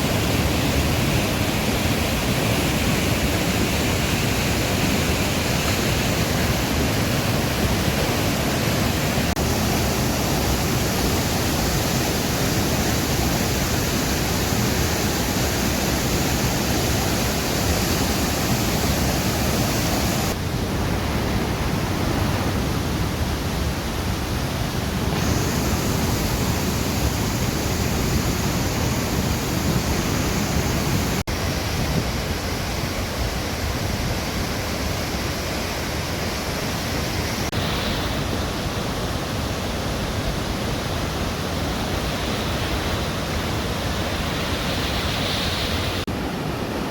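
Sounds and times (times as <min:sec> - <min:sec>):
waterfall roaring: 0:00.0 - 0:46.9.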